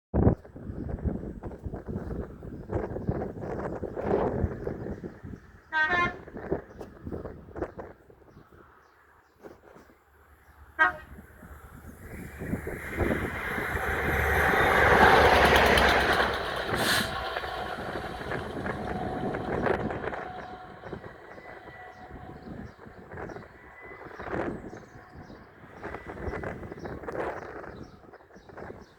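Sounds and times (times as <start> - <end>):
locomotive horn toot: 5.7 - 6.5, 10.8 - 11.3, 16.7 - 24.4
locomotive engine and wheels passing: 8.6 - 28.9.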